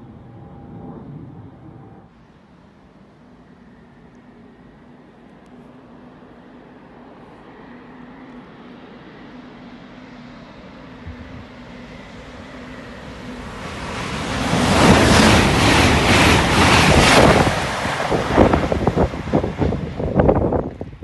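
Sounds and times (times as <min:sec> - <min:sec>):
train passing at speed: 0:00.0 - 0:21.0
wind buffeting microphone: 0:10.9 - 0:12.3, 0:13.1 - 0:21.0.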